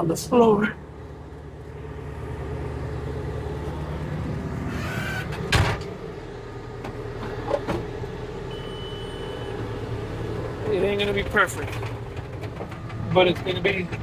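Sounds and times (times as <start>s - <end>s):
diesel engine running: 0.0s - 14.0s
loud clunk: 4.8s - 6.0s.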